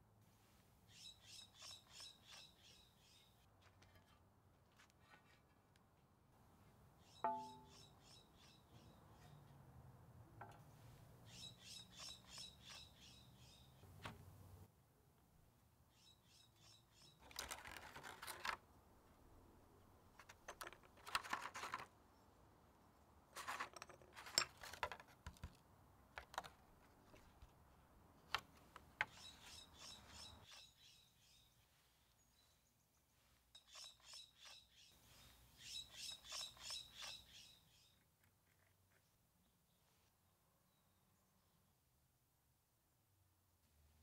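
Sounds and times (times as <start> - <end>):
faint bird chirps: 0.9 - 3.4, 7.0 - 9.6, 11.2 - 13.8, 15.9 - 17.4, 29.1 - 38.0
rustling scrapes: 3.6 - 5.7, 23.3 - 25.0.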